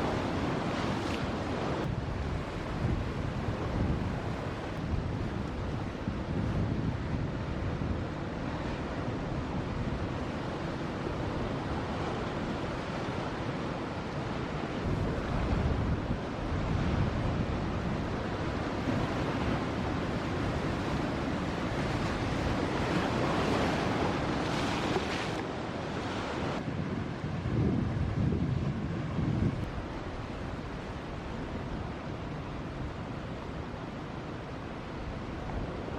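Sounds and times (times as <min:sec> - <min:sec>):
ocean surf breaking: 0:00.0 - 0:06.2, 0:08.2 - 0:27.5
wind buffeting microphone: 0:00.0 - 0:35.9.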